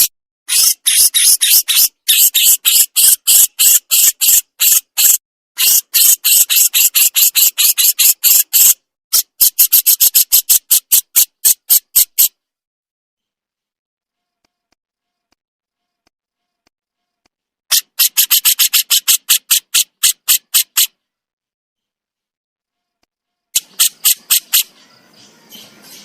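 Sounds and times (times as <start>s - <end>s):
songbird harsh scratchy call: 0.0s - 12.3s, 17.7s - 20.9s, 23.6s - 26.0s.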